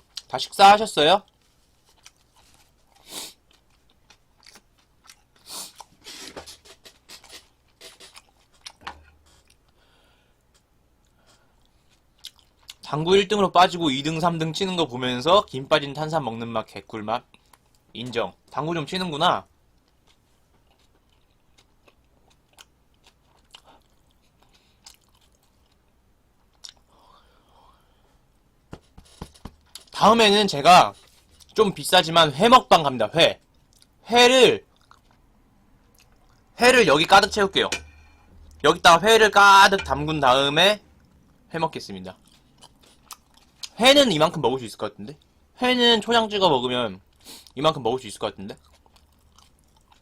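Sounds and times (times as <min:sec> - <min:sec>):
crunchy chewing: 0:01.2 - 0:09.8, 0:19.8 - 0:26.9, 0:34.7 - 0:35.2, 0:42.1 - 0:43.8, 0:48.5 - 0:50.0.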